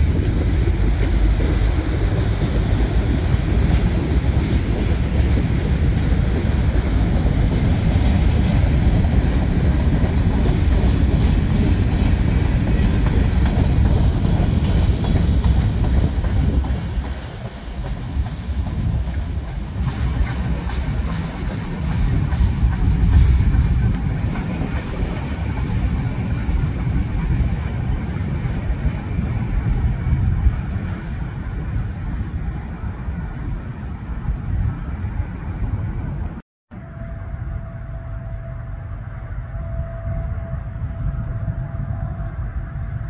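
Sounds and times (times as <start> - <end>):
freight train wheels clattering: 0.0 - 29.8.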